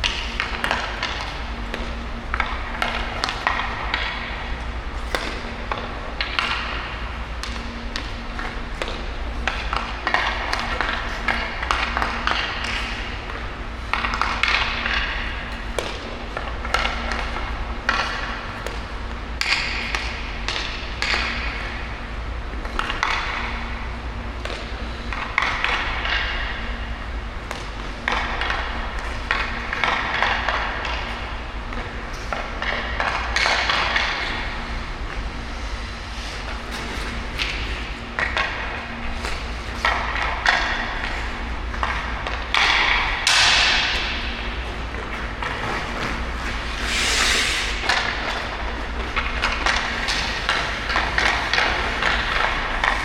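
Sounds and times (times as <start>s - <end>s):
hockey stick hitting puck: 0.0s - 21.9s, 22.6s - 23.8s, 24.4s - 26.7s, 27.4s - 31.2s, 32.6s - 34.4s, 36.7s - 53.0s
steady low hum: 0.0s - 53.0s
ice skate blades scraping: 42.6s - 53.0s.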